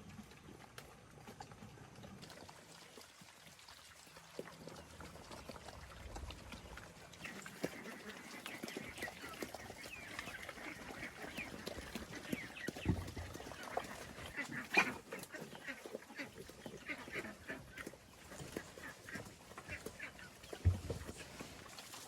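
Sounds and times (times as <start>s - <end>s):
animals chirping: 6.6s - 21.2s.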